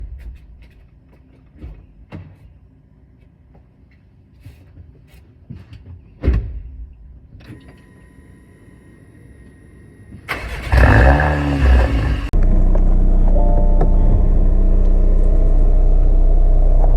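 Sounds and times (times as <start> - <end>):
high-pitched electronic tone: 12.4 - 16.8.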